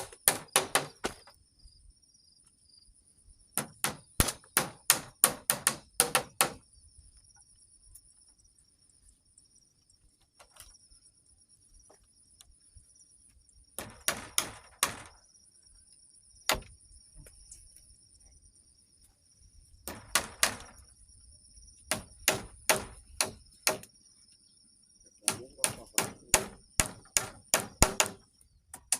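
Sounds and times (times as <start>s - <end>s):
tool striking wood: 0.0s - 1.3s, 3.6s - 6.6s, 13.8s - 15.2s, 16.5s - 16.7s, 19.9s - 20.8s, 21.9s - 23.9s, 25.2s - 28.9s.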